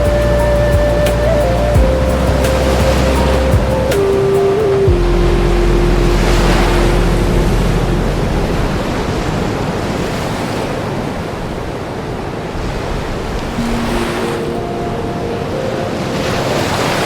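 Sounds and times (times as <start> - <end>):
soft background music note: 0.0 - 8.9, 13.6 - 17.0
ocean surf washing: 0.0 - 17.0.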